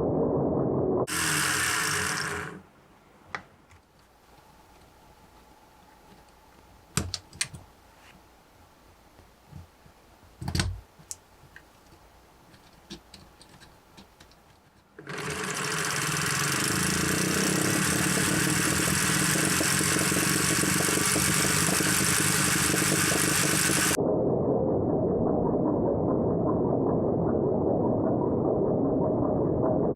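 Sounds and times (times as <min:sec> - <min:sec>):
toy engine model whirring: 0:01.1 - 0:02.6, 0:15.0 - 0:24.0
plastic pieces clicking: 0:10.4 - 0:20.8.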